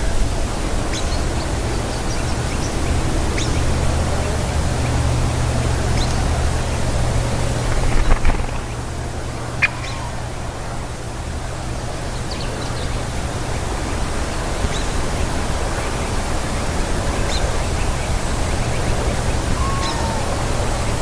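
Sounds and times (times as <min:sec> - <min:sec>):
low call: 0:00.0 - 0:21.0
sharp bird calls: 0:00.0 - 0:21.0
loud rushing noise: 0:04.0 - 0:12.0.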